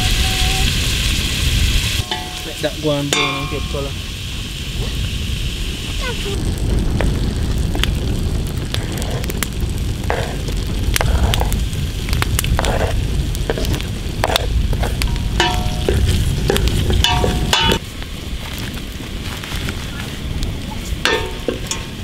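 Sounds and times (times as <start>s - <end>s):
food sizzling in hot oil: 0.0s - 19.5s, 20.8s - 22.0s
low rumble: 0.0s - 22.0s.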